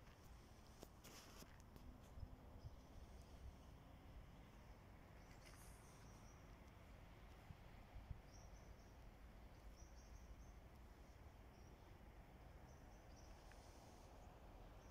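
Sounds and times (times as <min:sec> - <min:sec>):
faint outdoor background noise: 0:00.0 - 0:14.9
small bird chirping: 0:04.6 - 0:06.6, 0:08.2 - 0:12.0, 0:12.6 - 0:14.9.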